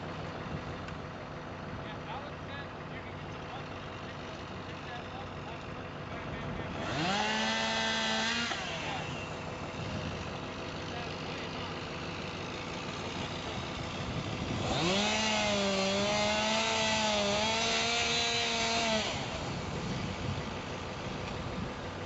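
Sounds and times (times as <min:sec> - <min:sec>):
background engine drone: 0:00.0 - 0:22.0
chainsaw running at high revs: 0:02.6 - 0:22.0.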